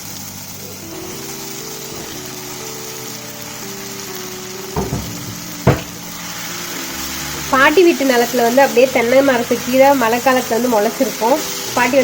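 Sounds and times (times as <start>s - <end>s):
food sizzling in frying pan: 0.0s - 12.0s
soft background music: 0.0s - 12.0s
sharp knocks: 4.8s - 6.1s.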